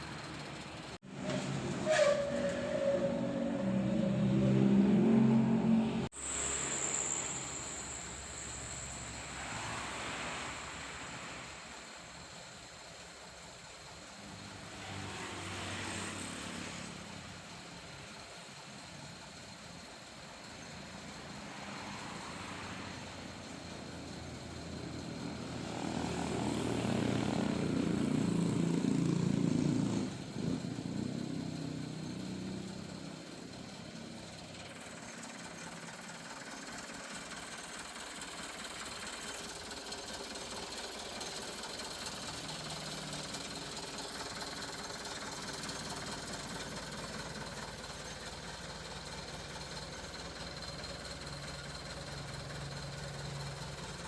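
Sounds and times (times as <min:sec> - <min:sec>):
truck engine idling: 0:30.9 - 0:54.0.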